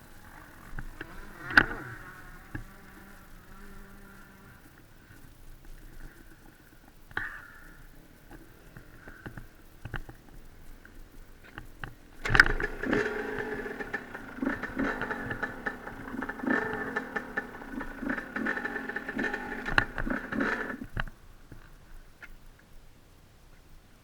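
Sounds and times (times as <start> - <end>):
dirt bike engine: 0.2 - 4.6, 12.2 - 21.1
faint clicks: 0.2 - 22.8.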